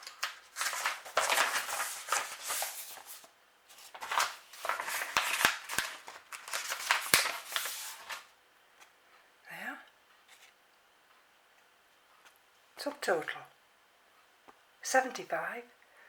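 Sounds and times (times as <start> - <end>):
paper and packaging rustling: 0.0 - 8.3.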